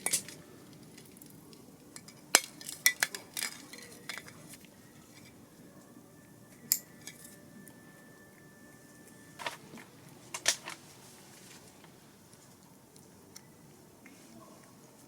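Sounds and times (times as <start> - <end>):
cutlery and dishes clinking: 2.0 - 5.4.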